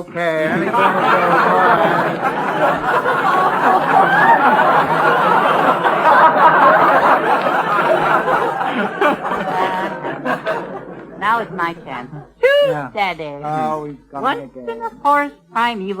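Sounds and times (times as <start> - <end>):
audience laughing: 0.2 - 12.4.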